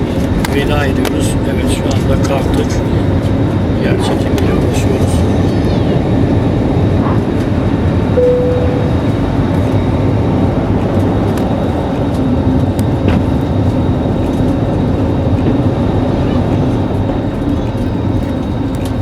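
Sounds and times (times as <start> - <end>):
jet engine cabin rumble: 0.0 - 19.0
short steady tone: 8.2 - 9.5.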